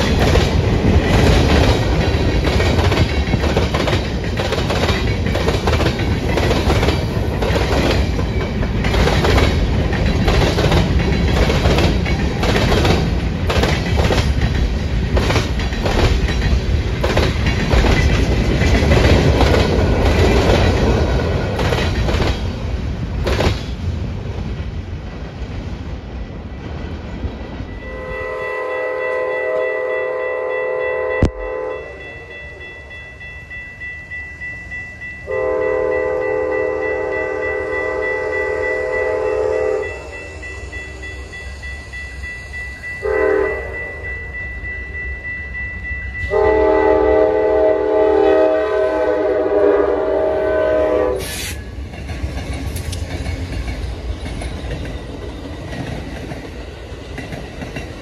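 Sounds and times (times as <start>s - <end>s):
train air horn blast: 27.8s - 32.1s, 35.3s - 40.3s, 43.0s - 44.0s, 46.3s - 51.7s.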